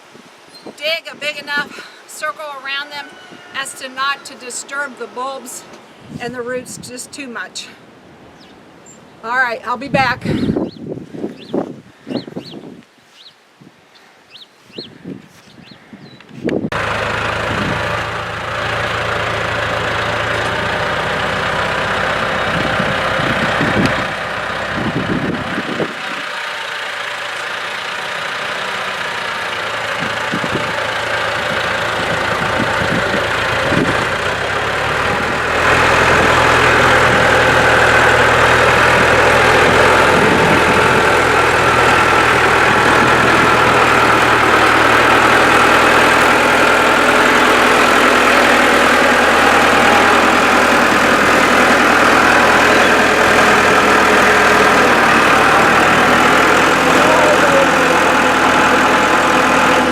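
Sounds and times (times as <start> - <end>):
tractor engine running: 16.7 - 59.9.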